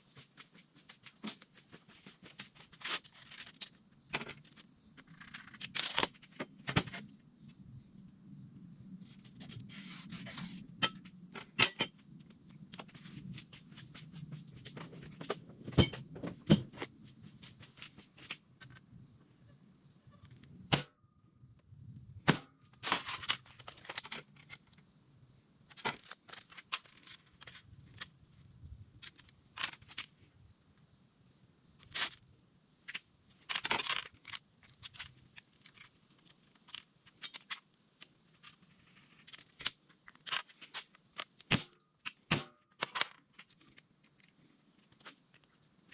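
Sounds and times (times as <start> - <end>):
faint high whine: 0.0 - 23.2.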